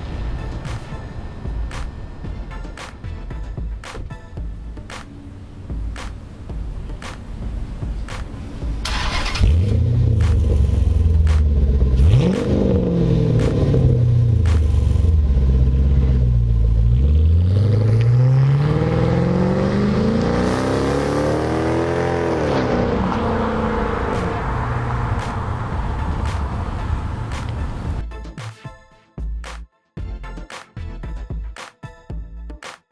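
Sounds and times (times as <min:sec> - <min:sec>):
car engine revving: 0:04.7 - 0:28.0.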